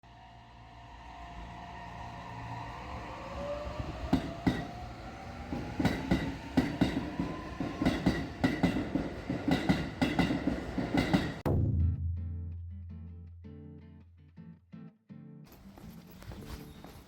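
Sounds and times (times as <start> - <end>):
train traction motors whining: 0.0 - 11.1
train wheels clicking over rail joints: 4.0 - 11.4.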